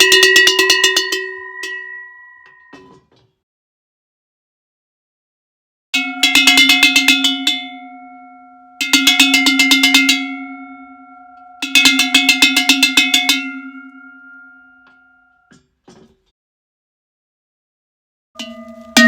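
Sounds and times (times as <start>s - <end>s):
cowbell clanking: 0.0s - 3.1s, 6.0s - 15.6s, 18.4s - 19.0s.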